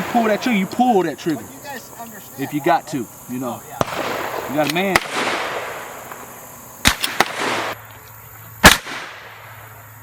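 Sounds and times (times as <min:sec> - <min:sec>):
gunshots: 0:03.8 - 0:07.8, 0:08.6 - 0:09.6.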